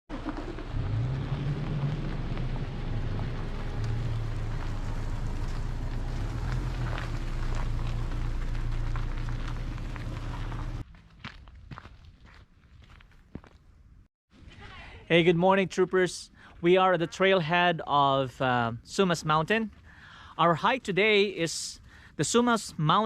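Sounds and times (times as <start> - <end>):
tyres crackling on loose surface: 0.1 - 10.8
low engine drone: 0.2 - 10.8.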